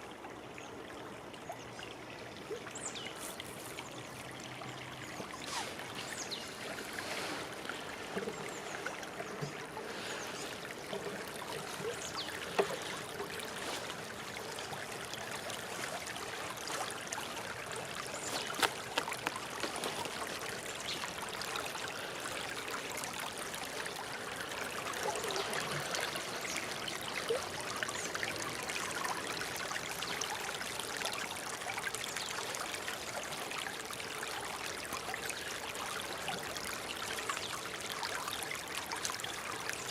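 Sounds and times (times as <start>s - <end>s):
water flowing and trickling: 0.0s - 39.9s
sharp water splashes: 15.2s - 21.5s.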